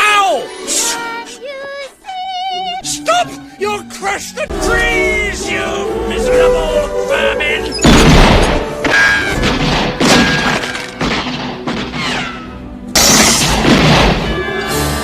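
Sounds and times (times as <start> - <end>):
dramatic orchestral film music: 2.5 - 15.0
crashing shattering impacts: 7.8 - 12.1, 13.0 - 14.4.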